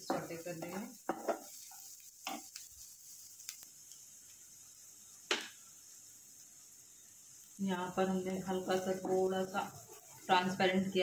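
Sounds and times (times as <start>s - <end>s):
wooden spatula knocking pan: 0.0s - 2.6s
vegetables sizzling in a pan: 0.0s - 11.0s.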